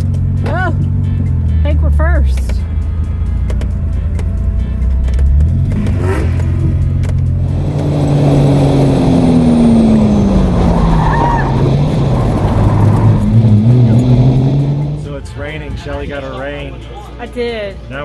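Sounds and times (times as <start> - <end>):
car engine running under load: 0.0 - 15.2
tone sliding downward: 7.4 - 15.1
rough wash of noise: 7.4 - 15.2.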